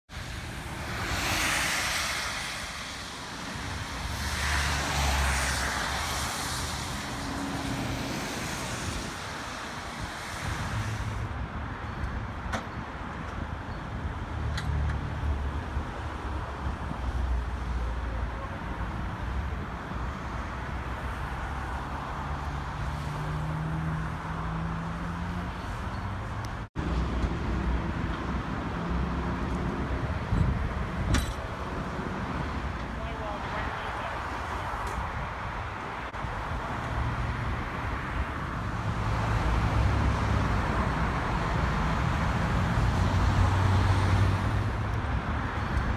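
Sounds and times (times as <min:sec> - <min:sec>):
wind buffeting microphone: 0:29.3 - 0:32.8.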